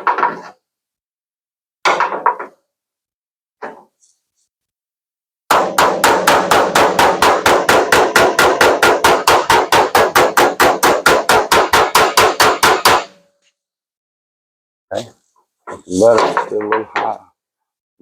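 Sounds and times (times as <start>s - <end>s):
hammer tapping sheet metal: 5.5s - 13.2s.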